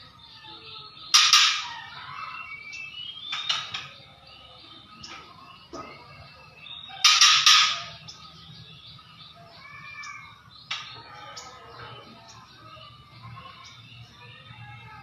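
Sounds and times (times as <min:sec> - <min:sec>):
bird harsh rattling call: 0:07.0 - 0:08.1.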